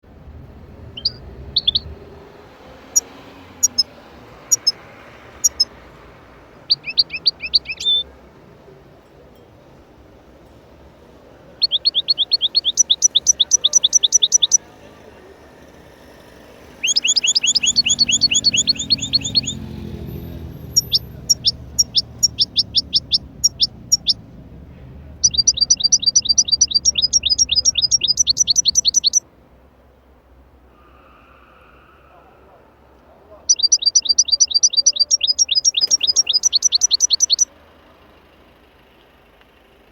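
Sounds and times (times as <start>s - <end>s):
songbird trilling: 0.8s - 2.0s, 2.9s - 5.8s, 6.6s - 8.1s, 11.6s - 14.7s, 16.7s - 24.3s, 25.1s - 29.2s, 33.5s - 37.5s.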